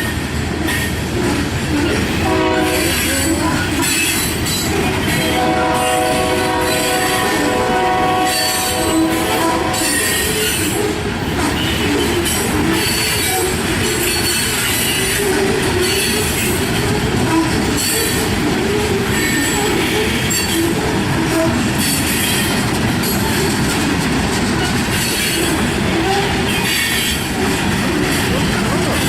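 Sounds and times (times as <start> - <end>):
freight train rumbling past: 0.0 - 29.0
train wheels squealing: 9.8 - 23.6.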